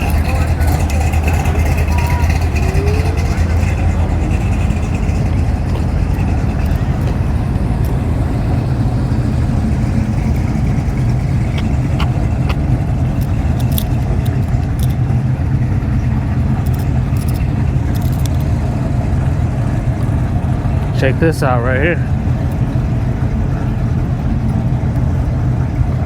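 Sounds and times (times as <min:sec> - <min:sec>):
light clicks and jingles: 0:00.0 - 0:08.2, 0:10.0 - 0:15.3, 0:16.3 - 0:20.8
car engine idling: 0:00.0 - 0:26.0.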